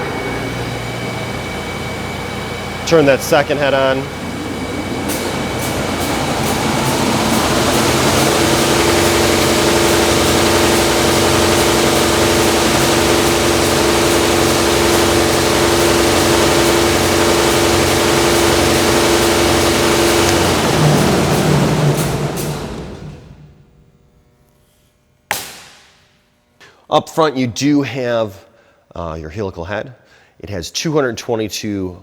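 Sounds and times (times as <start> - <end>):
sander motor coming up to speed: 0.0 - 24.0
running machine hum: 0.0 - 24.6.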